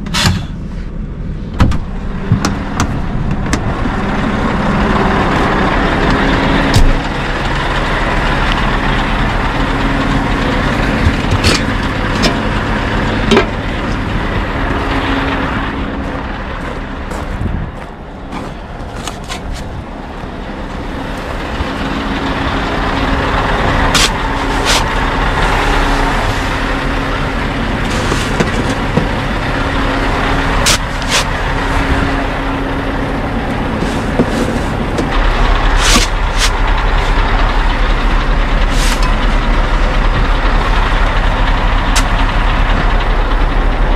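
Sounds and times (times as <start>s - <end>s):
diesel truck engine idling: 0.0s - 43.9s
sharp clicks and knocks: 1.6s - 3.7s, 11.0s - 12.5s.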